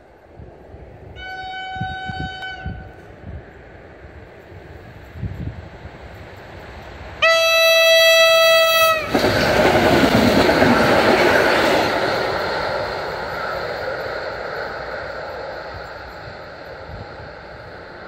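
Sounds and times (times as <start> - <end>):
train wheels on rails: 0.0 - 18.0
train horn blast: 1.2 - 3.0, 7.2 - 9.1.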